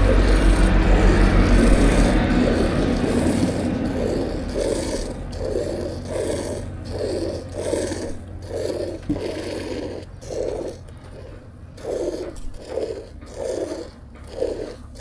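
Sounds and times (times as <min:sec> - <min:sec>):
low hum: 0:00.0 - 0:10.2
milk squirting into a pail: 0:00.0 - 0:15.0.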